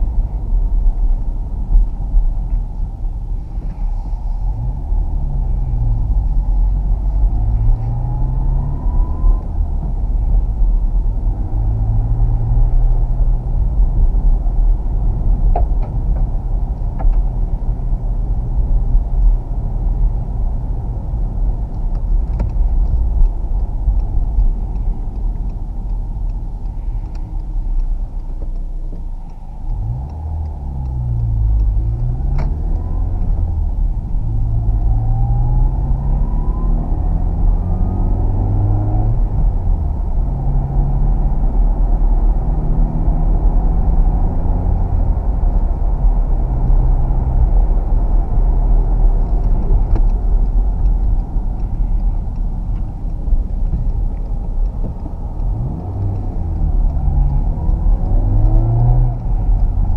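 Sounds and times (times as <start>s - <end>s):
rising engine whine: 0.0s - 28.2s, 28.8s - 59.9s
road rumble: 0.0s - 59.9s
car engine revving: 28.9s - 59.9s.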